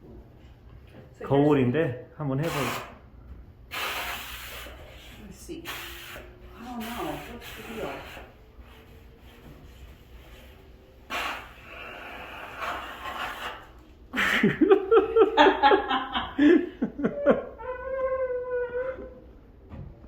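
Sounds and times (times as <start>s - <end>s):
steam hissing from nozzle: 2.4s - 3.0s, 3.7s - 13.7s
loud laughing: 14.1s - 17.8s.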